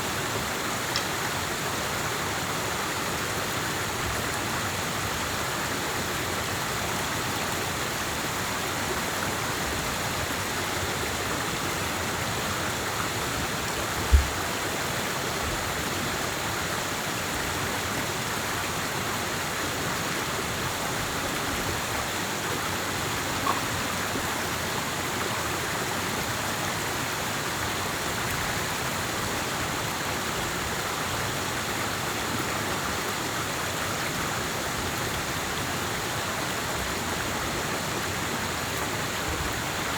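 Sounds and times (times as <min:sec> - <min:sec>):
rushing water: 0:00.0 - 0:39.9
faint short click: 0:00.9 - 0:01.2
low thump: 0:14.1 - 0:14.4.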